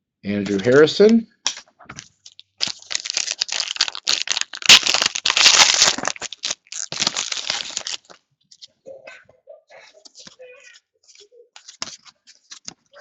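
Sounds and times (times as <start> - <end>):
foil crinkling and tearing: 2.3 - 8.2
foil wrapper crinkling and tearing: 2.3 - 8.2.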